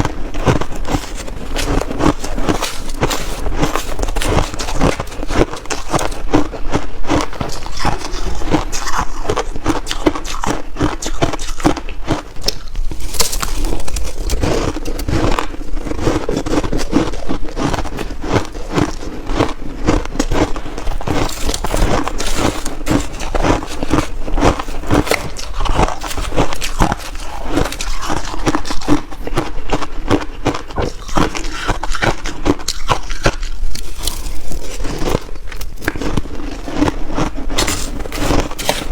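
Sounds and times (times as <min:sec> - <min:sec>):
ice crunching between teeth: 0:00.0 - 0:38.9.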